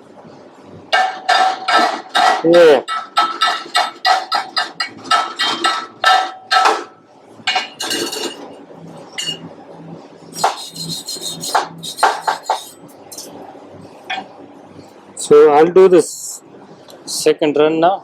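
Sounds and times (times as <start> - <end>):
hammer striking metal: 0.9 - 8.4, 10.4 - 13.3.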